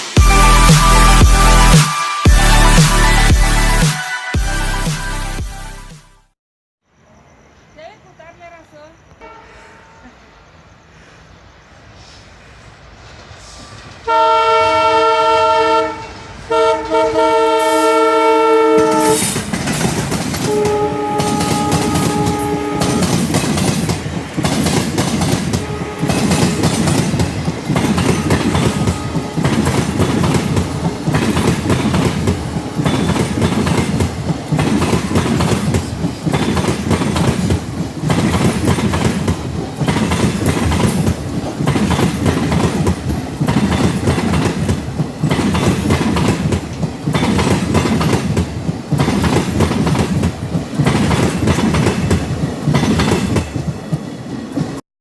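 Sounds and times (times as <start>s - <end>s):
train horn blasts: 9.2s - 10.2s, 14.0s - 19.4s, 20.4s - 23.4s, 25.5s - 26.8s, 28.1s - 30.0s
train wheels clacking over rail joints: 18.8s - 54.8s.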